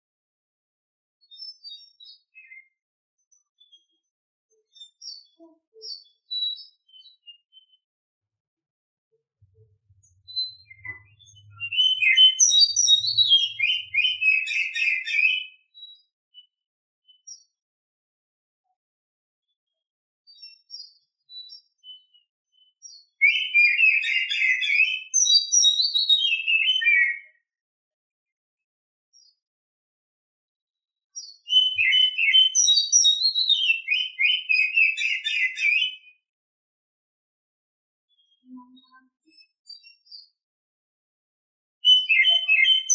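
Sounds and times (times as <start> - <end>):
bird singing whistled notes: 1.2 - 4.1, 4.7 - 7.9, 9.6 - 17.5, 20.3 - 27.4, 31.2 - 36.2, 38.1 - 40.3, 41.8 - 42.9
magpie-robin song: 1.2 - 7.9, 9.9 - 17.6, 20.3 - 27.4, 31.2 - 36.2, 38.1 - 40.4, 41.8 - 42.9.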